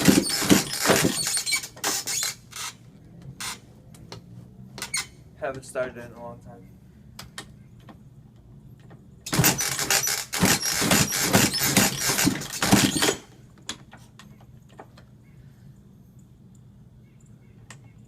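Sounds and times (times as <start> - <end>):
motorcycle engine turning over: 0.0 - 2.8, 9.3 - 13.3.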